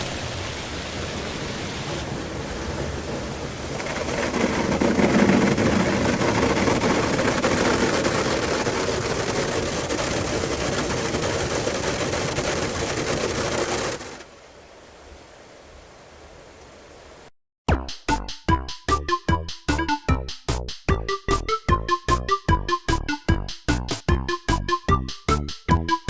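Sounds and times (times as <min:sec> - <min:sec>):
water jets spraying onto car: 0:03.4 - 0:14.3.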